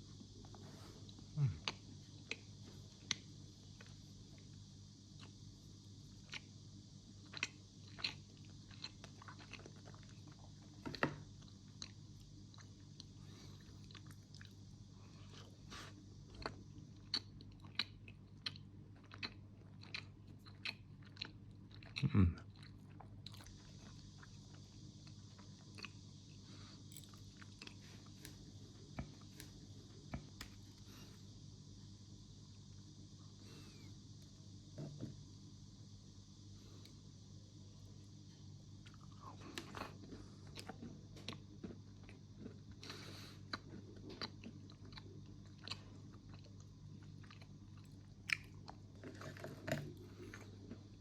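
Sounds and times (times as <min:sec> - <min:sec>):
faint low hum: 0:00.0 - 0:51.0
person chewing crunchy food: 0:07.1 - 0:31.2, 0:38.8 - 0:51.0.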